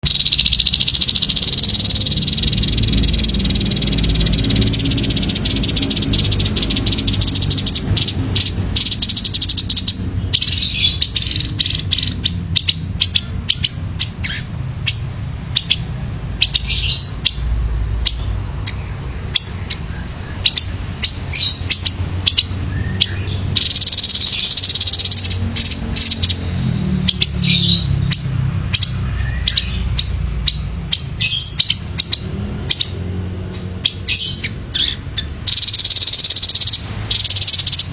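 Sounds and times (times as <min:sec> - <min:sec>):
bird trilling chatter and chirps: 0:00.0 - 0:37.9.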